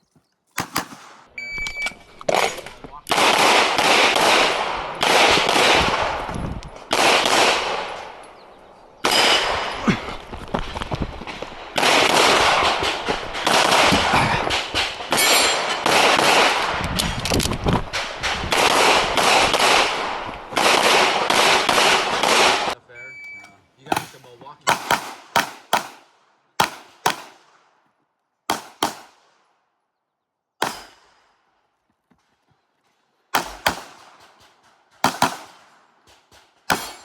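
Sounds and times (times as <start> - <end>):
pistol shots with echo: 0.6 - 1.3, 2.3 - 6.3, 6.9 - 8.4, 11.6 - 16.7, 18.0 - 22.8, 23.9 - 27.7, 28.5 - 29.4, 30.6 - 31.3, 33.3 - 37.0.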